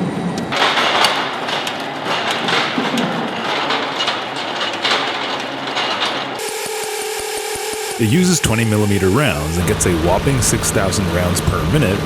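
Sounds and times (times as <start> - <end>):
metallic clanking and knocking: 0.5 - 6.8.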